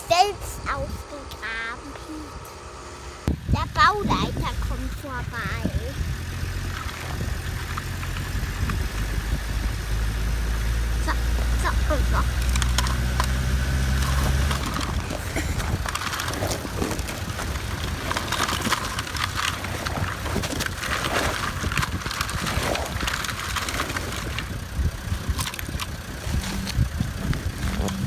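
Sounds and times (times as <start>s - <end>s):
low rumble: 2.4s - 28.0s
plastic toys scraping through gravel: 3.8s - 9.0s, 10.7s - 28.0s.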